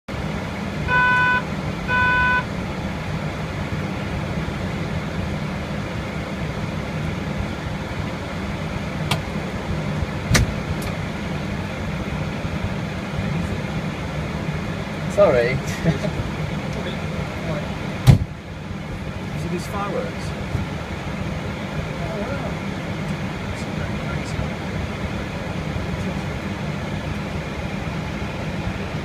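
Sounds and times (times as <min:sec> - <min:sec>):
short pitched beeps: 0:00.9 - 0:02.5.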